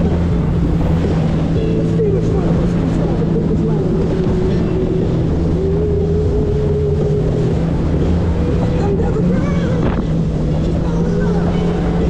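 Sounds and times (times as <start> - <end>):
outboard motor droning: 0.0 - 12.0
rushing noise: 0.0 - 12.0.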